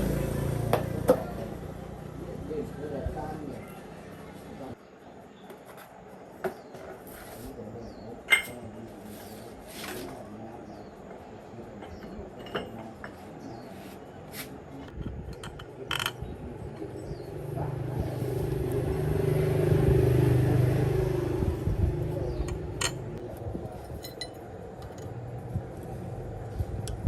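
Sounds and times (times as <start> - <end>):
motor vehicle passing by: 0.0 - 4.8, 16.6 - 23.3
metallic clinks of tools: 23.8 - 25.2.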